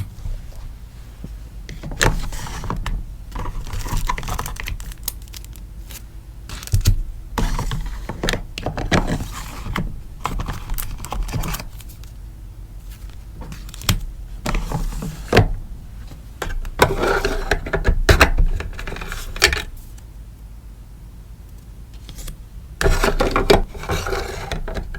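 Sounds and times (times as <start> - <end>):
packaging rustling and crinkling: 2.2 - 8.0.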